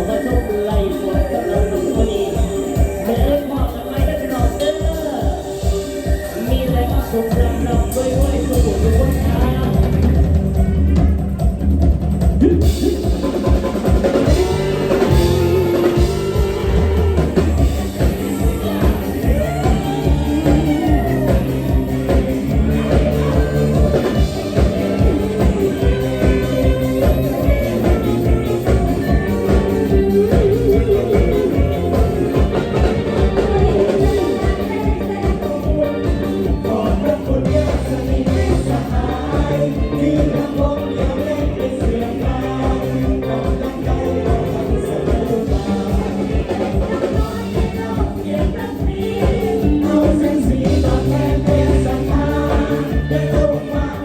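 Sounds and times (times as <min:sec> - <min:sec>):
drum kit beat: 0:00.0 - 0:54.0
live band playing upbeat song: 0:00.0 - 0:54.0
person singing: 0:12.4 - 0:54.0.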